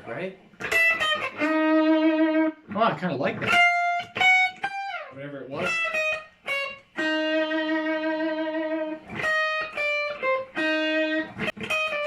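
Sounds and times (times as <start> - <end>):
guitar playing single notes: 0.6 - 12.0.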